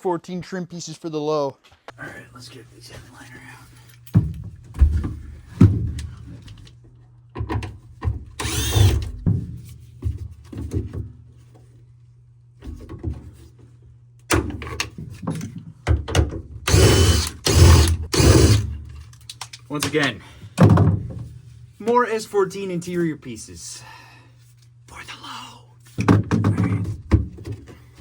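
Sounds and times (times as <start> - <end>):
whirring bursts: 8.4 - 9.1, 16.7 - 18.7.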